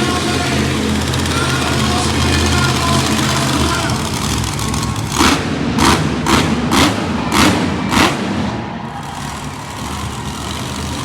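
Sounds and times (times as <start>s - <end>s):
loud bursts of noise: 0.0s - 11.0s
monster truck engine rumbling: 0.0s - 11.0s.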